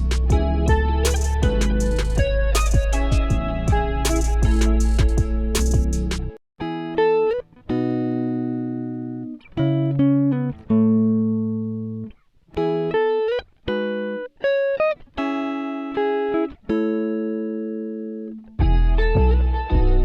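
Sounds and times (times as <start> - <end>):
guitar chords with sliding notes: 0.0 - 20.0.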